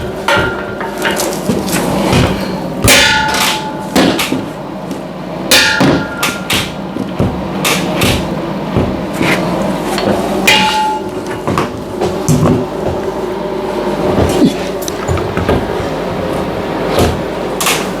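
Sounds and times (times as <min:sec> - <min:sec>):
hammer striking metal: 0:00.3 - 0:01.2, 0:02.1 - 0:04.4, 0:05.5 - 0:06.8, 0:10.0 - 0:11.6.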